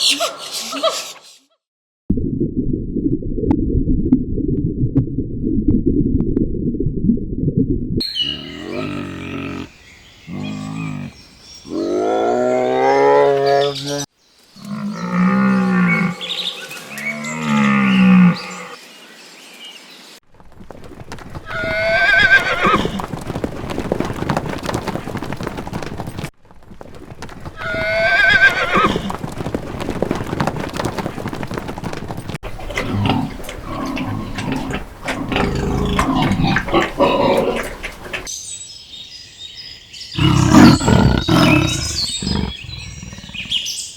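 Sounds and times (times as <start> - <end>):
outdoor background noise: 8.0 - 43.9
high wavering animal calls: 40.2 - 43.8.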